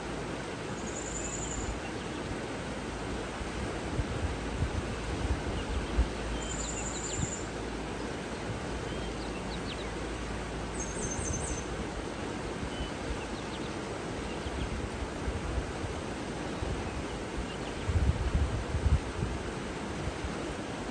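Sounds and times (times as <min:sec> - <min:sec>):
rushing water or wind: 0:00.0 - 0:20.9
wind buffeting microphone: 0:03.0 - 0:08.9, 0:14.5 - 0:20.4
faint high bird calls: 0:10.8 - 0:11.8.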